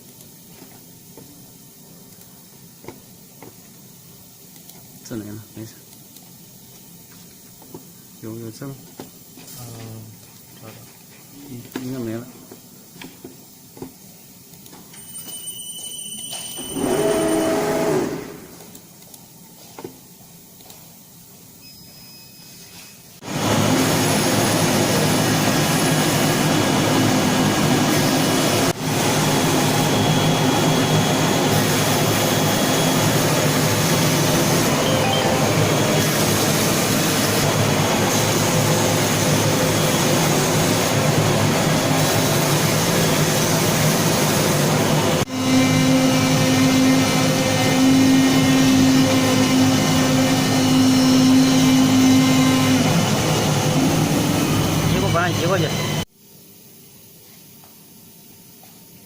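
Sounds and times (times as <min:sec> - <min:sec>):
short loud machine sound: 0:16.2 - 0:18.6, 0:34.6 - 0:37.4
loud steady machine noise: 0:16.6 - 0:18.6, 0:23.2 - 0:56.1.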